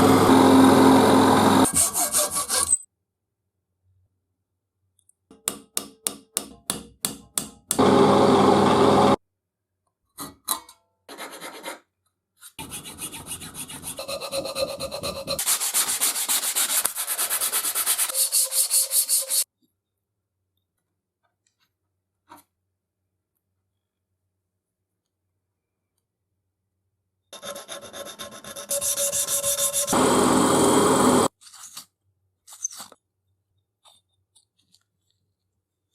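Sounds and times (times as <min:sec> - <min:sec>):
loud steady rasping: 0:00.1 - 0:02.8.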